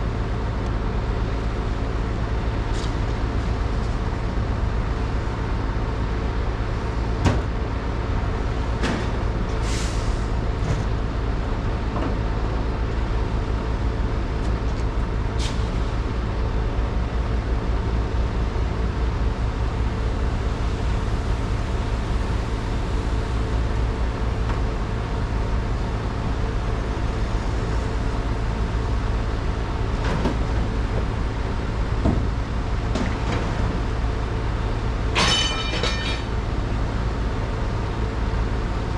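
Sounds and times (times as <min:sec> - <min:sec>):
truck engine drone: 0:00.0 - 0:38.9.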